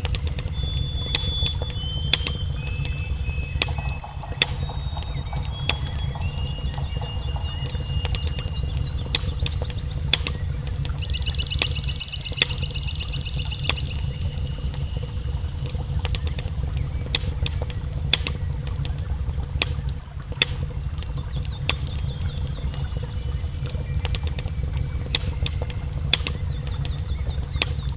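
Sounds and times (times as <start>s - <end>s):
thin high whistle: 0.0s - 9.4s
fire burning with low rumble: 0.0s - 27.9s
fire crackles and pops: 0.0s - 27.9s.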